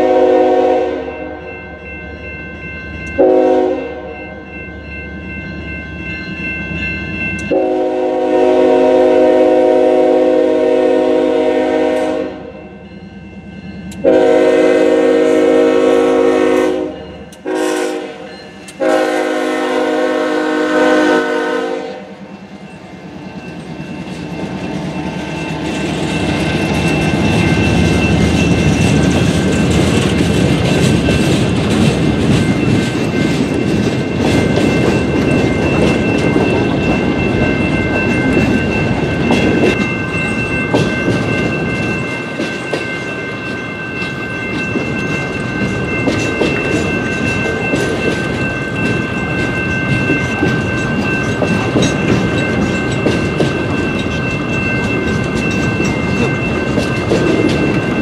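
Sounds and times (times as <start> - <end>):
locomotive horn blasts: 0.0 - 1.4, 3.2 - 4.1, 7.5 - 12.5, 14.0 - 22.2
crossing bell ringing: 0.0 - 58.0
wheels clattering over rail joints: 23.2 - 58.0.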